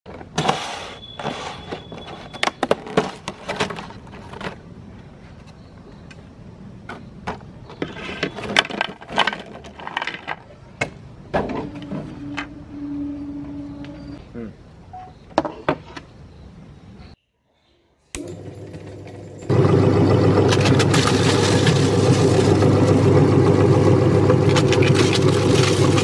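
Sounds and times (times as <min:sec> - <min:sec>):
meat grinder motor humming: 0:18.2 - 0:26.0.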